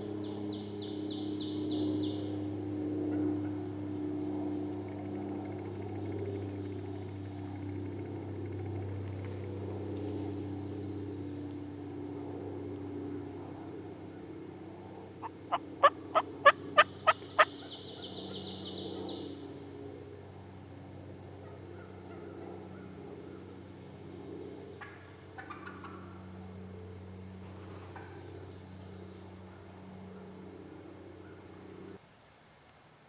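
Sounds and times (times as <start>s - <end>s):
low hum: 0.0s - 32.0s
turkey yelps: 15.2s - 17.6s.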